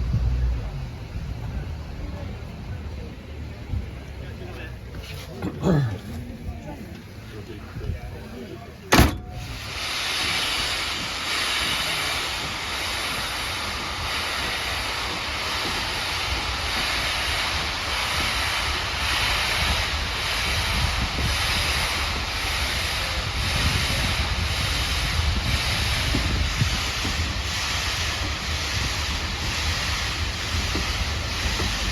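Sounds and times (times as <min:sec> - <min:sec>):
steam locomotive exhaust beats: 0:00.0 - 0:05.2, 0:06.8 - 0:31.9
steady rushing noise: 0:09.4 - 0:31.9
wind buffeting microphone: 0:15.5 - 0:31.9.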